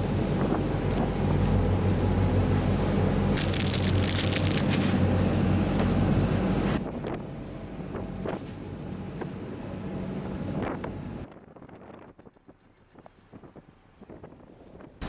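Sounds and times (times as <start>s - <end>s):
wind noise on microphone: 0.0s - 1.4s, 10.2s - 15.0s
ferry engine drone: 0.0s - 12.5s
crackling noise: 3.4s - 4.9s.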